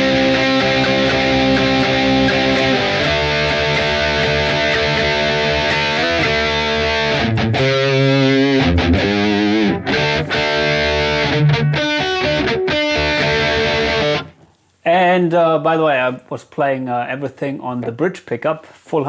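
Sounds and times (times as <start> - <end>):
distorted electric guitar chords: 0.0 - 14.4.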